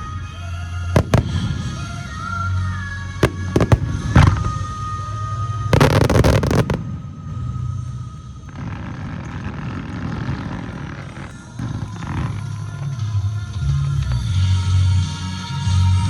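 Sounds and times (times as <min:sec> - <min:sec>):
music: 0:00.0 - 0:16.0
fireworks bangs: 0:01.0 - 0:02.4, 0:03.2 - 0:07.1
fireworks crackling: 0:01.0 - 0:02.6, 0:03.2 - 0:07.5.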